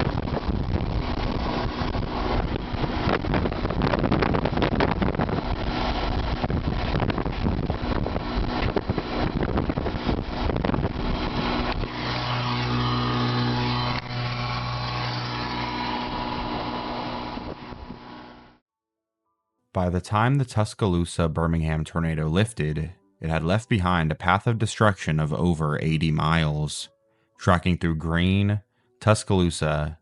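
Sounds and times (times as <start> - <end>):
strong wind buffeting microphone: 0.0 - 18.3
low even hum: 0.0 - 18.6.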